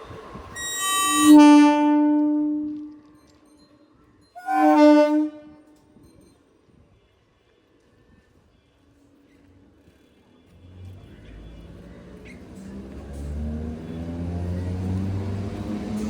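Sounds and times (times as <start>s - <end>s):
train horn blasts: 0.5s - 3.3s, 4.4s - 5.9s.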